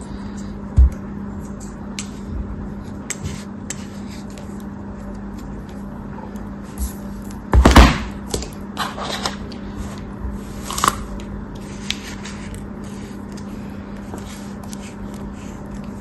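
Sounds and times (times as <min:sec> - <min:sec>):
knife cutting crunchy material: 0:10.5 - 0:11.1.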